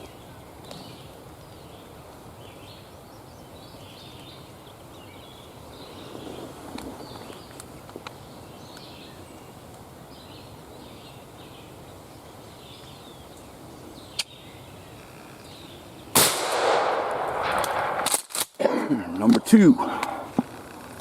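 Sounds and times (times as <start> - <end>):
shotgun shot: 16.2 - 18.6.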